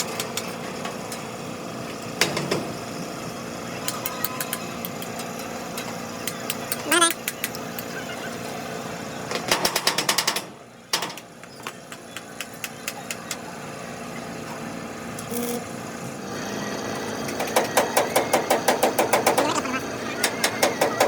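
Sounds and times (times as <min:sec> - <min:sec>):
workshop din: 0:00.0 - 0:21.0
rapid mechanical hammering: 0:09.4 - 0:13.4, 0:16.8 - 0:21.0.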